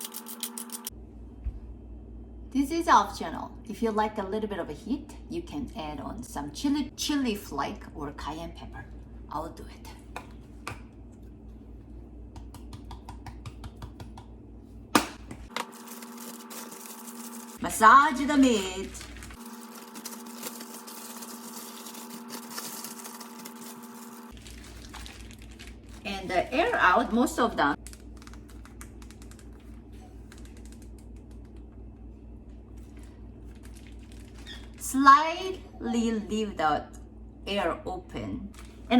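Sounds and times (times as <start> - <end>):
plastic bag clicks and crinkles: 18.2 - 26.3, 27.8 - 29.7, 33.5 - 34.8.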